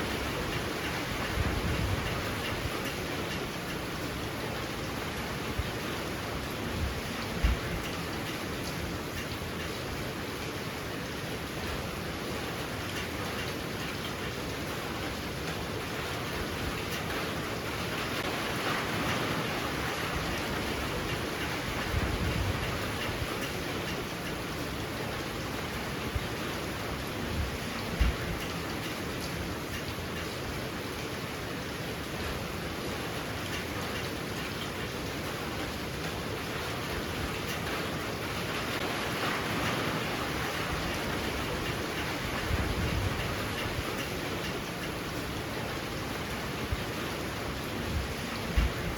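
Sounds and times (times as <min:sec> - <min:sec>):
heavy rain falling: 0:00.0 - 0:48.9.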